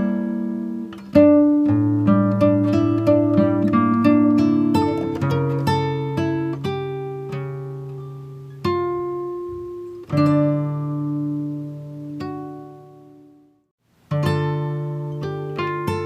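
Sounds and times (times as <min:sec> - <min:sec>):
acoustic guitar picking: 0:00.0 - 0:16.0.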